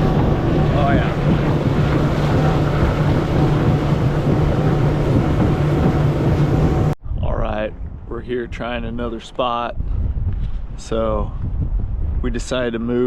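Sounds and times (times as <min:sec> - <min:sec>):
boat motor humming: 0:00.0 - 0:07.0
water noise: 0:00.0 - 0:08.1
rushing wind: 0:00.0 - 0:13.0.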